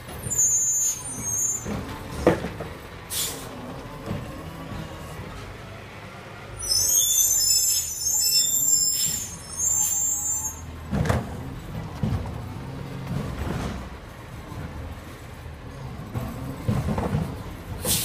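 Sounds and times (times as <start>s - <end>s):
garbage truck engine running: 0.0s - 6.8s, 9.6s - 18.0s
high-pitched metallic squeal: 0.2s - 1.8s, 6.5s - 10.7s.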